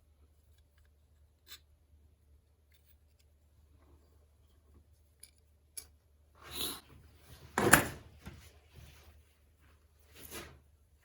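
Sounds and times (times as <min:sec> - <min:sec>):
faint clicks of small tools: 0:04.5 - 0:06.0.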